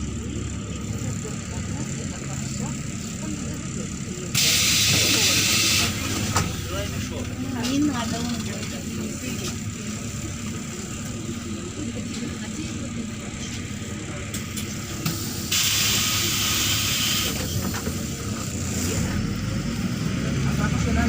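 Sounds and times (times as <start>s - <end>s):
bus engine and road rumble: 0.0s - 21.0s
compressed air hiss: 15.2s - 17.4s.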